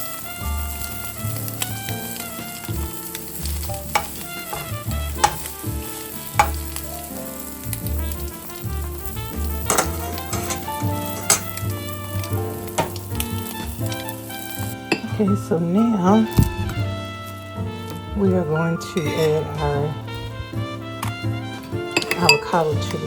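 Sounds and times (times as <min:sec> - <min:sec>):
utensil clicking on pan: 0:00.0 - 0:15.2, 0:21.9 - 0:23.0
background music: 0:00.0 - 0:23.0
egg sizzling in a pan: 0:00.0 - 0:23.0.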